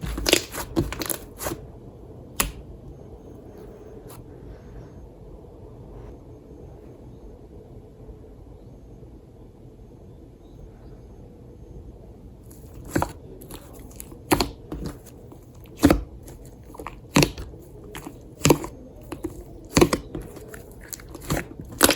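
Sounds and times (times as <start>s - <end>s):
soft slime crackling: 0.0s - 1.6s, 12.5s - 21.9s.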